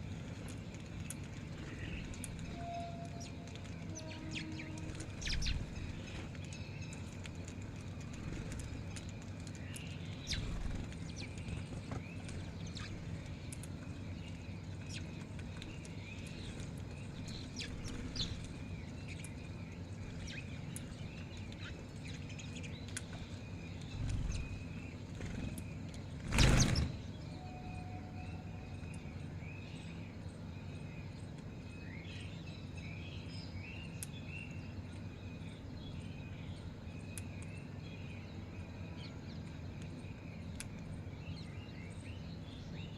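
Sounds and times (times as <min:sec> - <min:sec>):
birds chirping: 0:00.0 - 0:42.9
low hum: 0:00.0 - 0:42.9
small clicks: 0:20.3 - 0:24.5.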